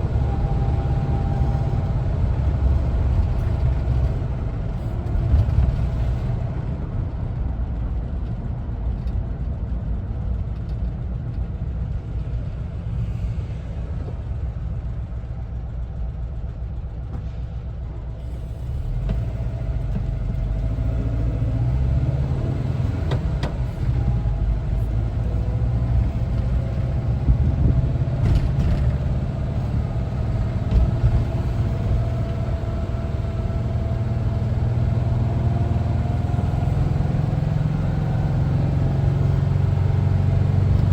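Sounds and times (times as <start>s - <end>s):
road noise: 0.0s - 40.9s
van engine rumbling: 0.0s - 40.9s.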